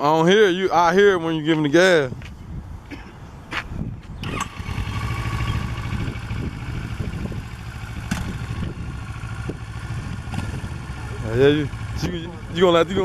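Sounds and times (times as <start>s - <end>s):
motorcycle engine idling: 4.2s - 13.0s.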